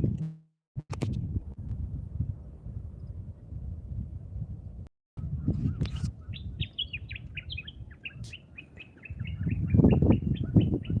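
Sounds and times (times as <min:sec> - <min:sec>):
songbird chirping: 0:05.2 - 0:11.0.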